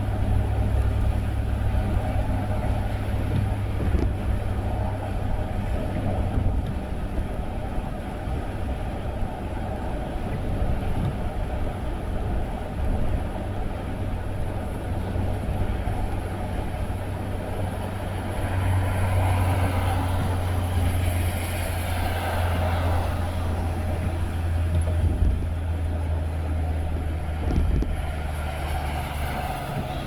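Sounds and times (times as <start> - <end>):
car engine drone: 0.0 - 30.0
road noise hiss: 0.0 - 30.0.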